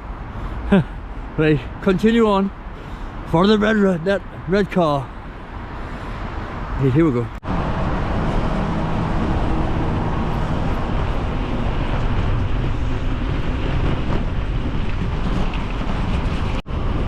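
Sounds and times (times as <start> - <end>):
wind buffeting microphone: 7.4 - 17.0.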